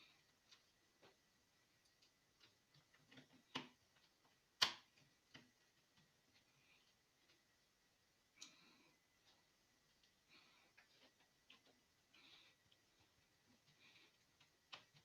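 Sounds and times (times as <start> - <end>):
faint clicks and taps: 0.0 - 15.0.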